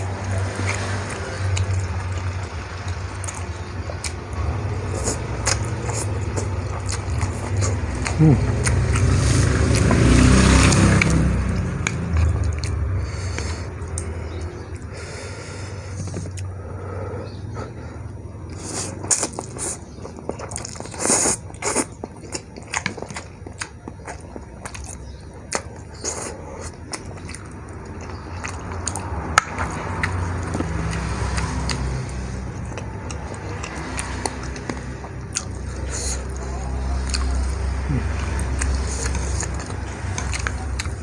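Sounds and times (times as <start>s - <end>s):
person chewing noodles: 0.0s - 41.0s.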